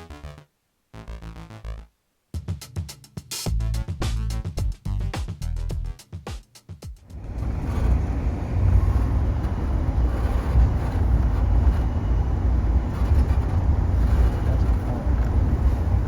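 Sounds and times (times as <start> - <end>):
music: 0.0 - 7.1
train rumbling on track: 7.1 - 16.0.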